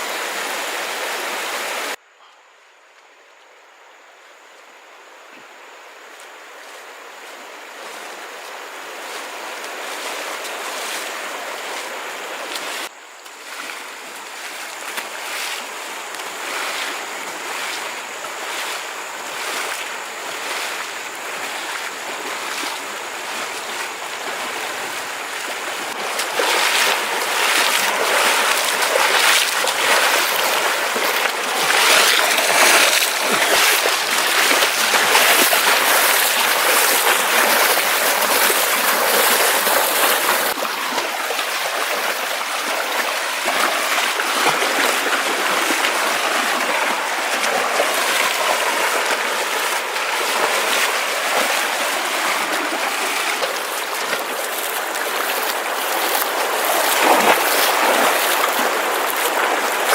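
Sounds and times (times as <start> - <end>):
water rushing: 0.0 - 2.0, 5.6 - 59.9.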